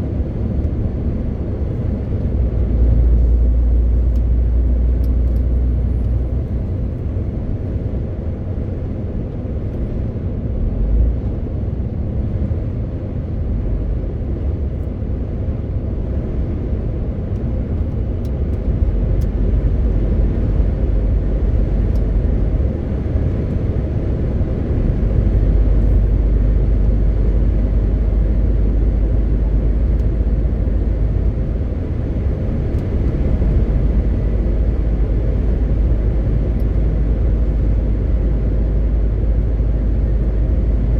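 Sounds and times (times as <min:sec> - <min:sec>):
road noise: 0:00.0 - 0:40.9
truck diesel engine drone: 0:00.0 - 0:40.9.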